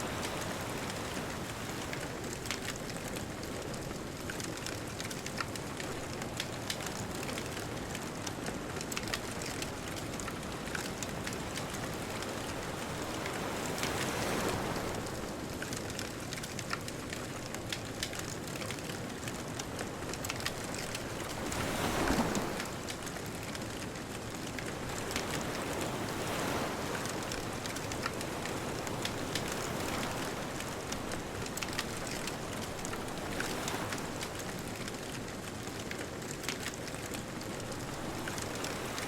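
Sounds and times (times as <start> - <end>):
bonfire crackling and popping: 0.2 - 12.3, 15.0 - 21.9, 22.6 - 39.0
distant ocean waves: 20.2 - 23.1.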